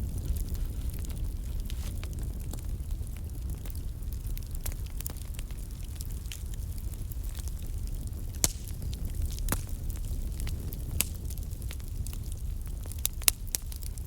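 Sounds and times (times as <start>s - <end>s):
fire crackling and popping: 0.0s - 14.0s
fire flames rumbling: 0.0s - 14.0s.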